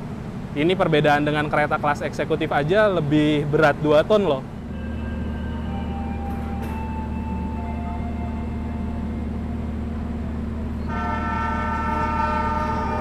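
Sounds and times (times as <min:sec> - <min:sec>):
diesel locomotive rumble: 0:00.0 - 0:13.0
train horn: 0:04.7 - 0:09.4, 0:10.8 - 0:13.0.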